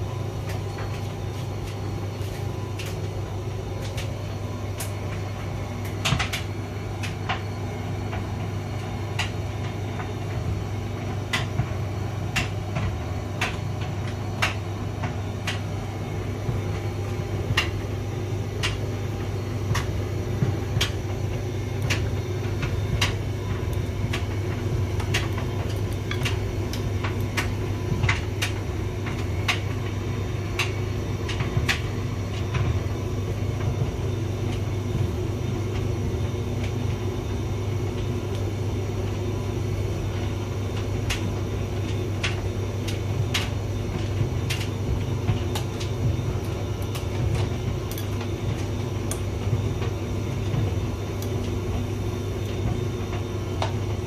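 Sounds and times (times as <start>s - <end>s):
tumble dryer motor hum: 0.0s - 54.0s.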